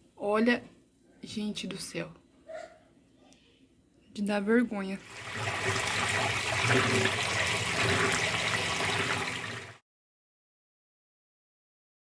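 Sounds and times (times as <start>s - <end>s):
washing machine churning water: 5.0s - 9.8s.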